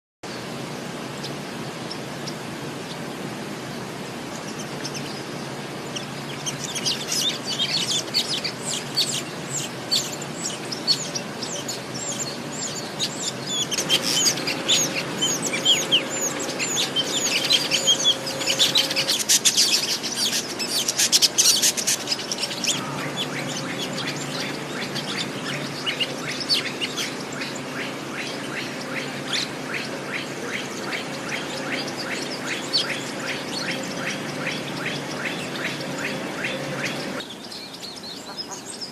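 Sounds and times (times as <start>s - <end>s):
birds chirping: 0.2s - 38.9s
steady background hiss: 0.3s - 38.9s.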